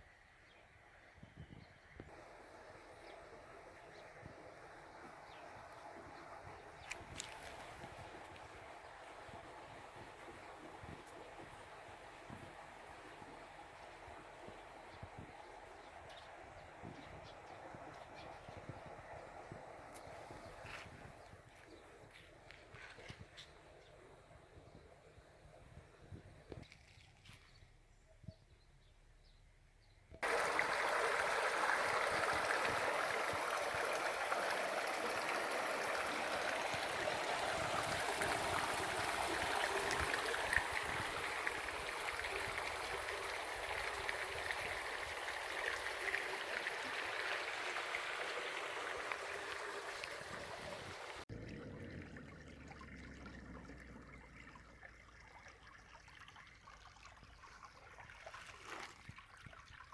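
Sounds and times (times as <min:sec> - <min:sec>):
stream water rushing: 0:02.1 - 0:18.2, 0:30.2 - 0:55.4.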